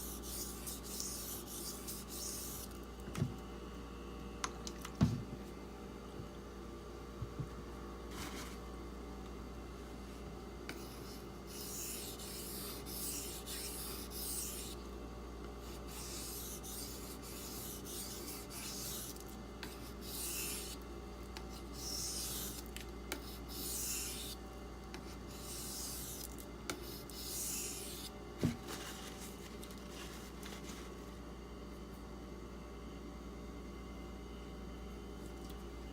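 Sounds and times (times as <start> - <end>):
knife rasping on sharpening stone: 23.2 - 24.4.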